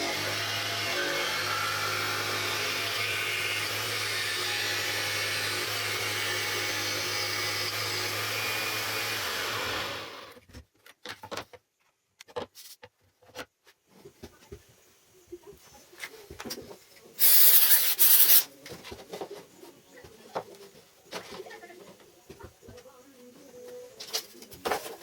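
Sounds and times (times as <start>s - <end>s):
band saw running: 0.0s - 10.3s.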